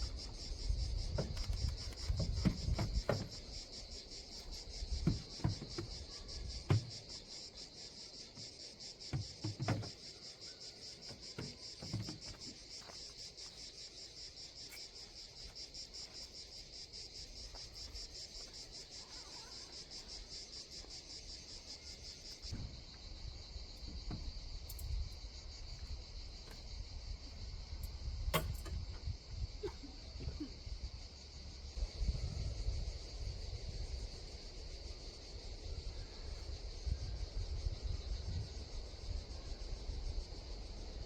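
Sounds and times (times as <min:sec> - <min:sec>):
insects chirring: 0:00.0 - 0:41.0
soft knocks: 0:01.1 - 0:03.5, 0:04.9 - 0:07.1, 0:09.1 - 0:10.2, 0:11.0 - 0:13.0.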